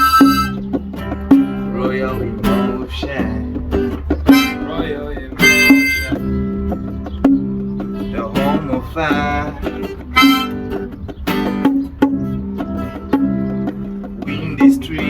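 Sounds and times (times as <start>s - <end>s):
plucked guitar notes: 0.0s - 15.0s
person singing: 4.3s - 6.2s, 8.1s - 10.6s.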